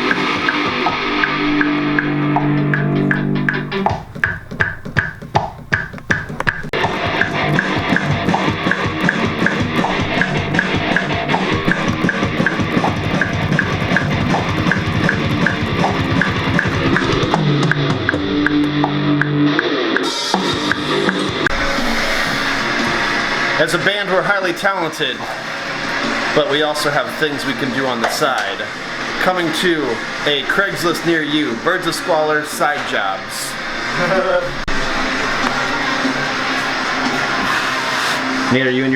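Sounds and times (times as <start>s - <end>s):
rock guitar chords: 0.0s - 29.2s
drum kit beat: 0.0s - 31.0s.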